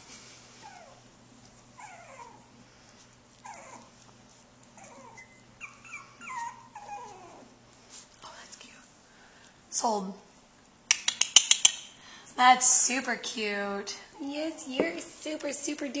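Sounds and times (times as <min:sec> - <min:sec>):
puppies whimpering: 0:01.7 - 0:02.6, 0:03.3 - 0:07.6.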